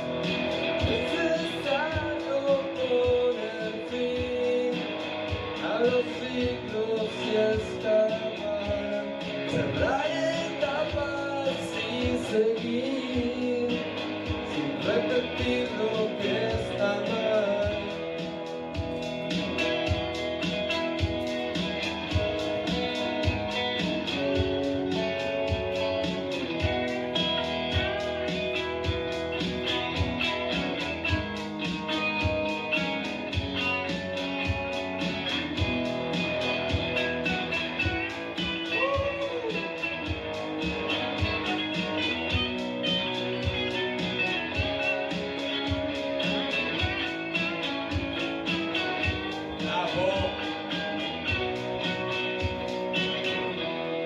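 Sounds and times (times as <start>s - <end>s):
steady drum beat: 0.0s - 53.6s
lead guitar with bent notes: 0.0s - 54.0s.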